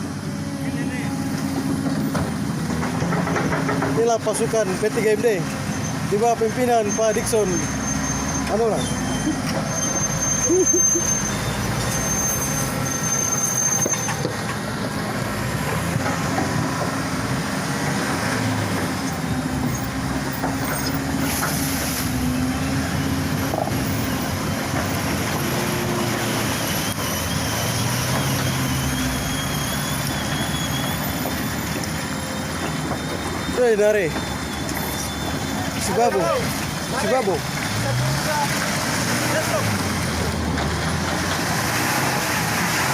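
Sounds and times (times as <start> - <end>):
pickup truck engine under load: 9.0 - 42.9.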